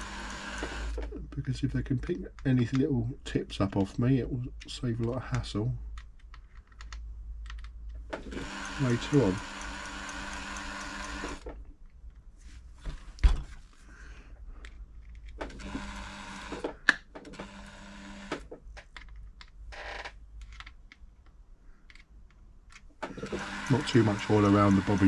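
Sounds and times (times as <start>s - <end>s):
sewing machine motor running: 0.0s - 1.0s, 8.2s - 11.4s, 15.5s - 16.6s, 23.1s - 25.0s
clicks and knocks of handling: 18.4s - 19.7s, 20.4s - 23.2s.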